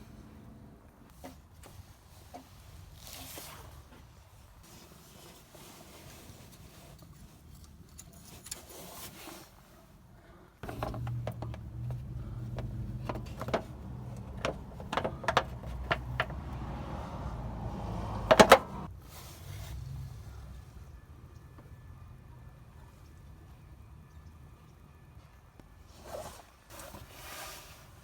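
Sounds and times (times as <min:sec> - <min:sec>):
car engine humming: 0:10.6 - 0:18.9
sharp clicks and knocks: 0:10.6 - 0:18.9.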